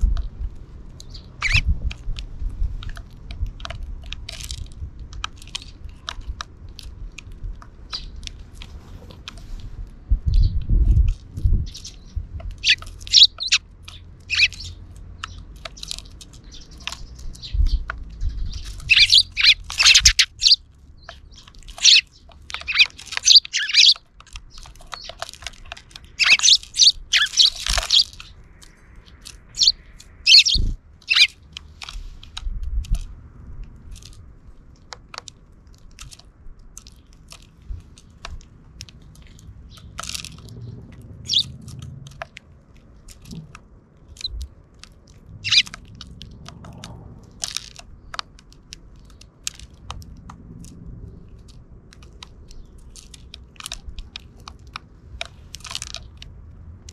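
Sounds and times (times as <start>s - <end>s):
sparrows chirping: 0.0s - 3.6s, 5.2s - 9.6s, 10.3s - 32.4s, 39.0s - 42.3s, 42.9s - 46.9s, 52.0s - 54.4s
pecking clicks and crunches: 0.0s - 56.9s.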